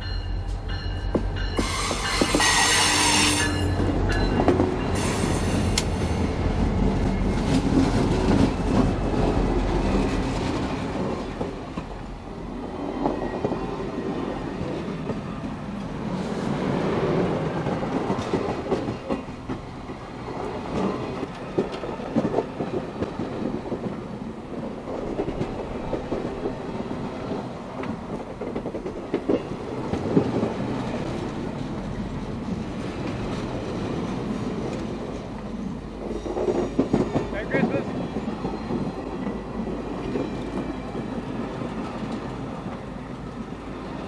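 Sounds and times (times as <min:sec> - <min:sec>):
train cars rumbling: 0:00.0 - 0:44.0
wheels clacking over rail joints: 0:16.7 - 0:35.5, 0:36.1 - 0:42.9.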